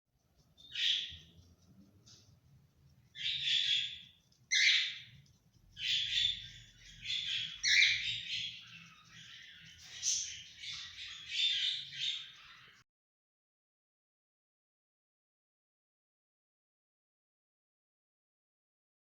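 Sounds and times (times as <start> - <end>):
parrots squawking: 0.6 - 1.3, 3.1 - 5.2, 5.8 - 12.8.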